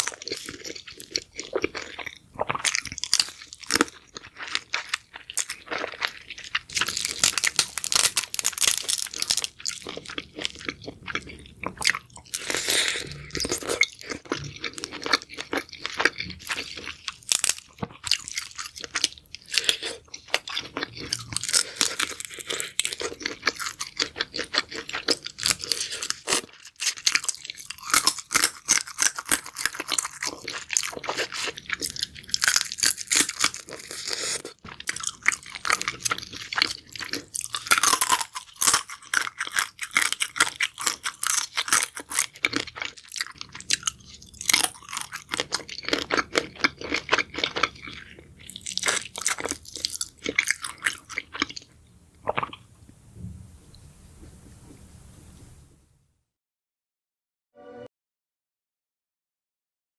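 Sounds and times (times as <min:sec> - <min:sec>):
chewing crunchy food: 0:00.0 - 0:53.0.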